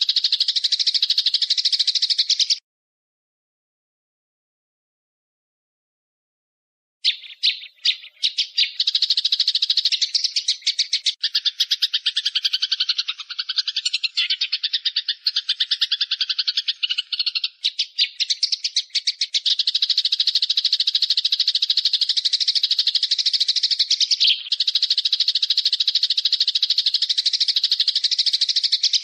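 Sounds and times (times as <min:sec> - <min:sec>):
bird rattling trill: 0:07.1 - 0:29.0.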